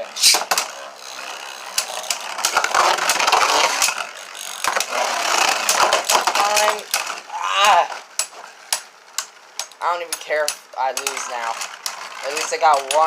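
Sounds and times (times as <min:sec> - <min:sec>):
spinning tops colliding: 0:00.0 - 0:07.3.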